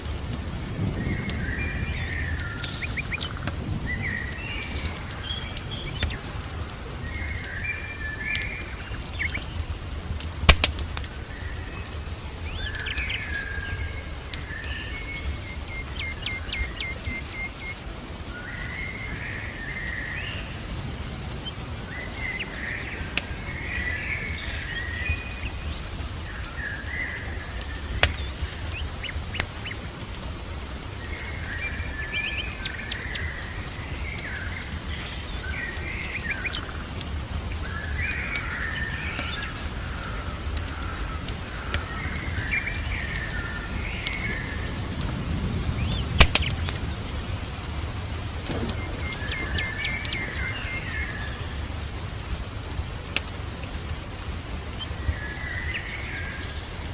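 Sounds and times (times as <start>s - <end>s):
small birds chirping: 0.0s - 56.9s
wood fire crackling: 0.0s - 56.9s.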